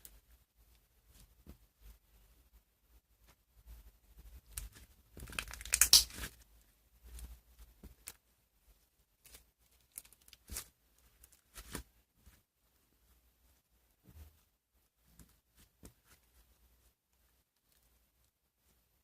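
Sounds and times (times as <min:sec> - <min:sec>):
slime crackling: 0:04.6 - 0:06.4.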